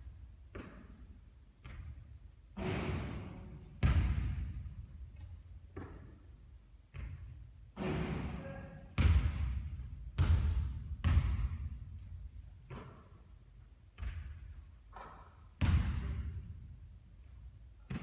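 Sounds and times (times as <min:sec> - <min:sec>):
basketball bouncing on court: 0:00.5 - 0:06.2, 0:06.9 - 0:08.0, 0:08.9 - 0:13.2, 0:14.0 - 0:16.5.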